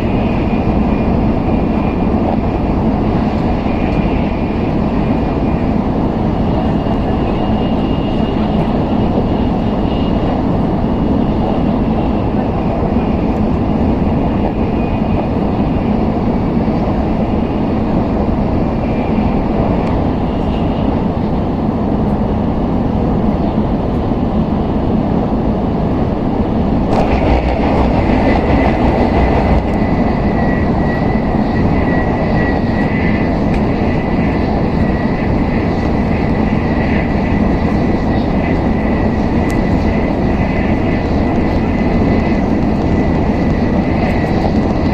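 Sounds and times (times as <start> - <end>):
steady high whine: 0.0 - 44.9
train cabin rushing rumble: 26.8 - 30.6.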